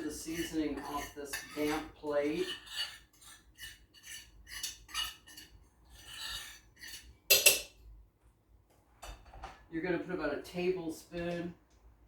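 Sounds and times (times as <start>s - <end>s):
utensil scraping a plate: 0.0s - 7.7s
utensil clattering on dish: 6.2s - 7.8s.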